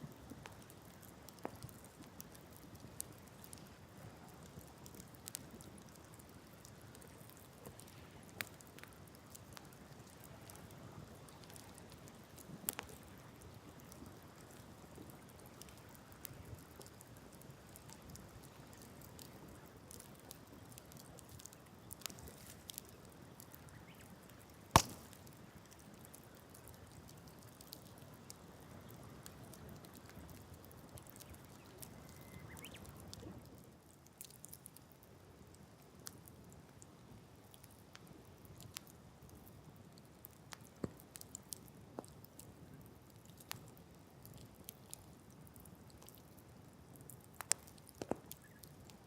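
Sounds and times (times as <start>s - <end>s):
campfire crackling: 0.0s - 49.0s
loud wood crack: 24.7s - 25.2s.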